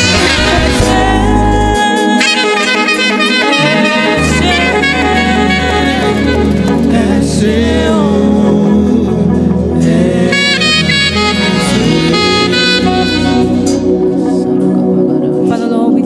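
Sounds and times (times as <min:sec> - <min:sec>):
low bass notes: 0:00.0 - 0:01.9, 0:03.6 - 0:16.0
saxophone playing lead melody: 0:00.0 - 0:15.5
gospel band music: 0:00.0 - 0:16.0.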